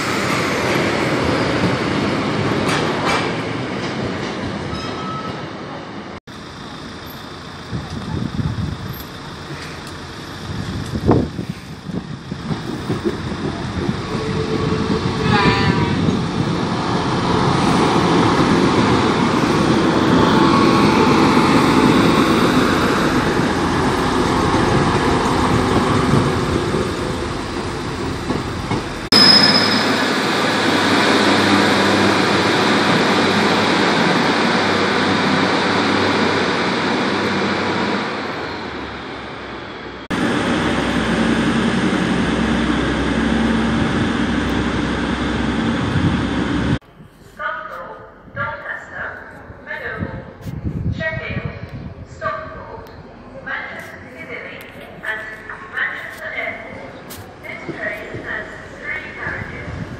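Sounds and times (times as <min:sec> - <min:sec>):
diesel train passing: 0:00.0 - 0:47.2
diesel train running at platform: 0:00.0 - 0:59.9.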